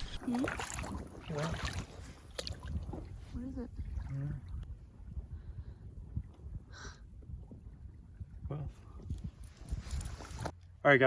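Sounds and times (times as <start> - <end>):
water moving at the shore: 0.0 - 5.0
wind on the microphone: 0.5 - 10.6.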